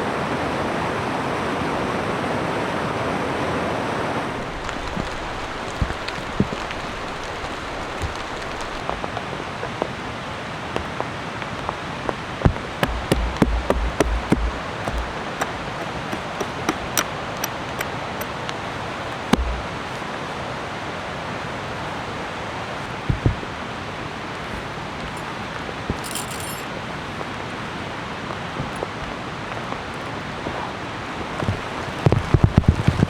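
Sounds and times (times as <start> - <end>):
rain hiss: 4.4 - 9.1
drops tapping a surface: 12.8 - 17.9, 19.4 - 19.8
low thumps: 12.8 - 17.9, 19.4 - 19.9.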